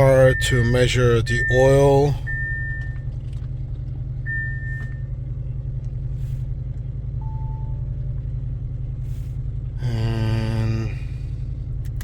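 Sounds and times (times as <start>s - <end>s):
lower beep: 0.0s - 3.0s, 4.3s - 5.0s, 7.2s - 7.9s
car engine idling: 0.0s - 12.0s.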